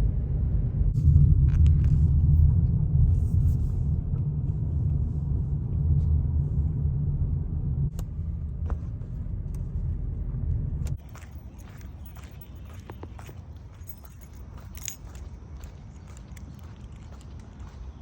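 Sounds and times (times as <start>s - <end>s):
loud low rumble: 0.0s - 13.3s.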